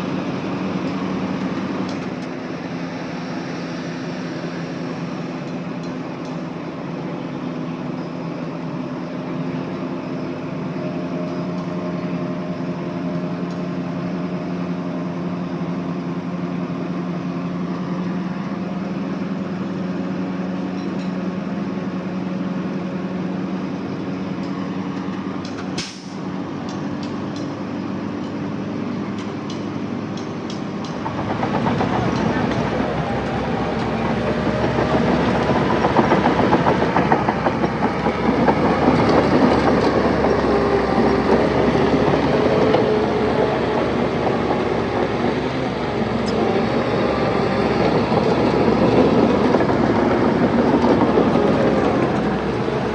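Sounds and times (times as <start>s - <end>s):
heavy diesel engine running: 0.0s - 52.9s.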